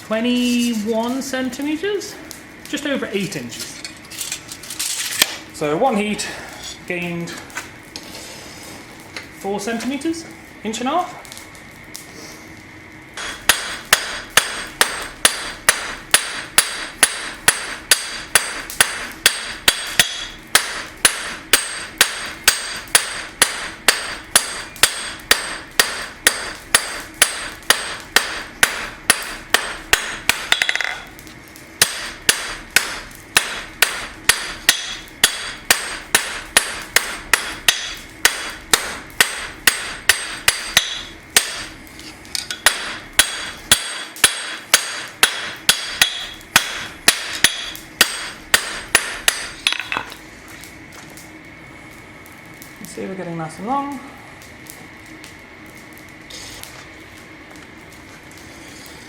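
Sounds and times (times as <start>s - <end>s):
hammer striking steel on anvil: 13.2s - 31.1s, 31.8s - 41.7s, 42.4s - 50.2s.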